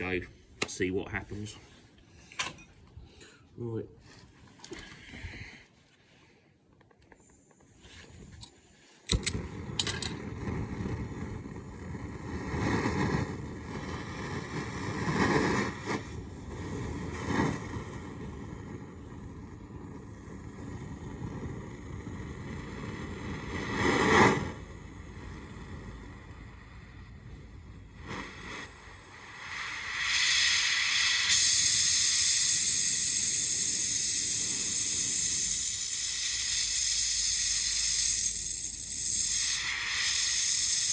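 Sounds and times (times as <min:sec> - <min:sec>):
torch igniter clicks: 0:08.3 - 0:10.3
torch flame rushing: 0:09.1 - 0:40.9.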